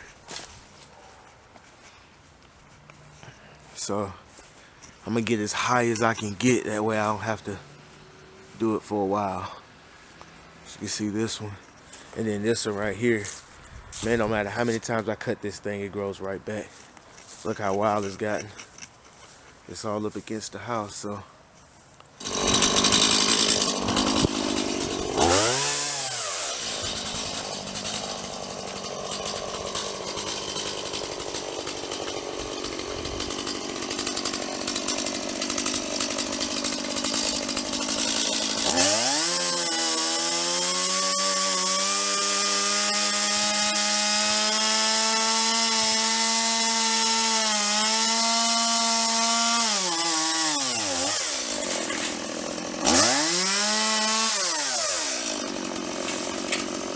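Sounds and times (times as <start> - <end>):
chainsaw cutting branches: 0.0 - 15.0, 16.2 - 21.1, 22.2 - 56.9.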